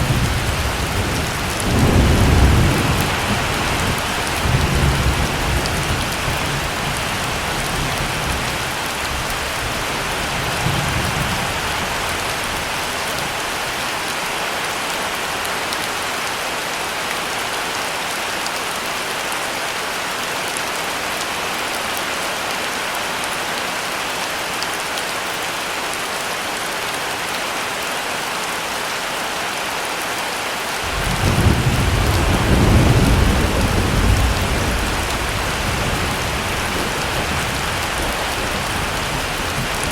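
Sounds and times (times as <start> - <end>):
heavy rain falling: 0.0 - 39.9
rolls of thunder: 30.9 - 38.2.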